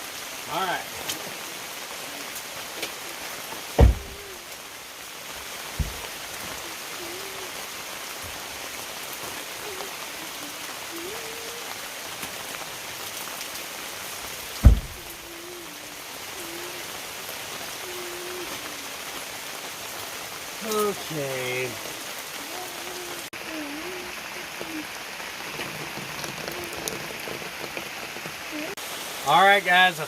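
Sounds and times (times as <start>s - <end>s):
heavy rain on a canopy: 0.0s - 30.0s
dull thumps: 14.6s - 15.1s.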